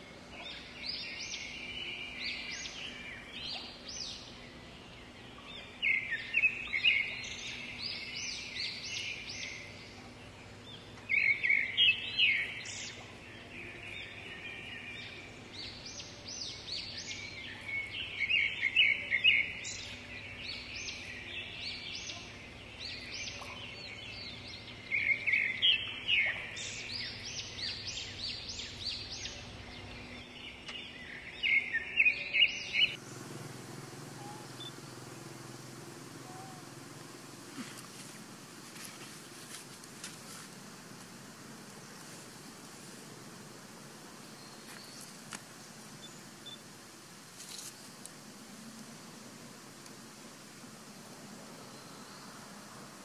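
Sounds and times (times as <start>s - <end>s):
outdoor hiss: 32.7s - 53.0s.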